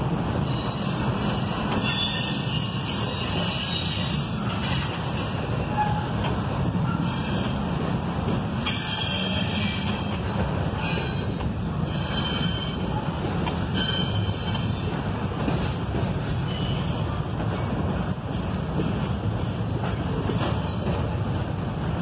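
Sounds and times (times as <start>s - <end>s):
steel wheels rumbling on rail: 0.0s - 22.0s
high-pitched wheel squeals: 0.5s - 6.1s.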